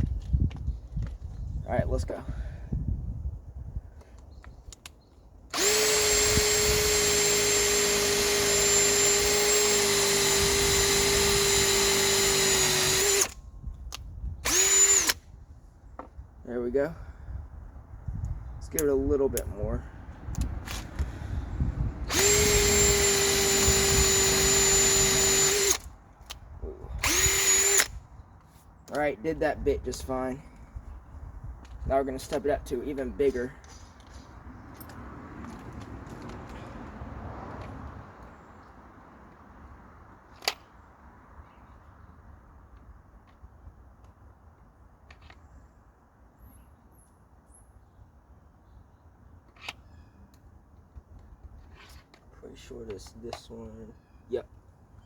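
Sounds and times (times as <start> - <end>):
hammer drill whining: 5.5 - 13.4, 14.4 - 15.2, 22.1 - 25.9, 27.0 - 28.0.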